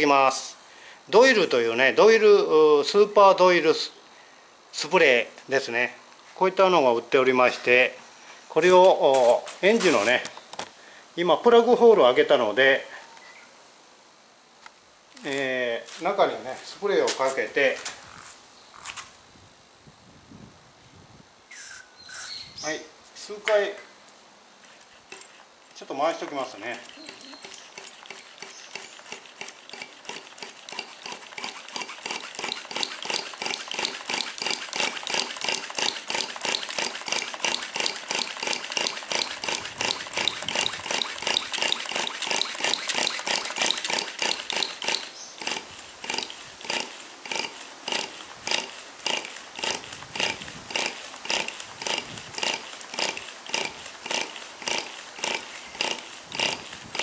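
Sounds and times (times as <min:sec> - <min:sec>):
model engine rhythmic puffing: 0:26.7 - 0:57.0.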